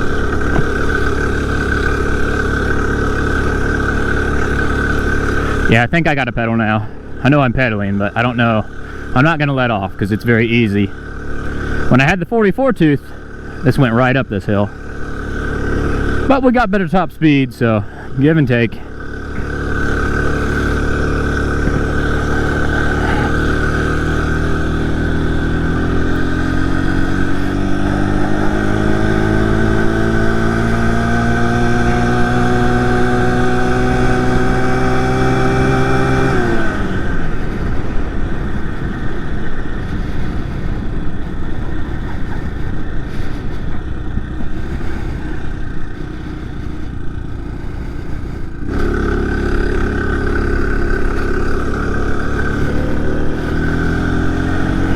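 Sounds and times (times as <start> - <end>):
small motorized bicycle engine: 0.0 - 5.7, 14.7 - 16.3, 18.8 - 54.9.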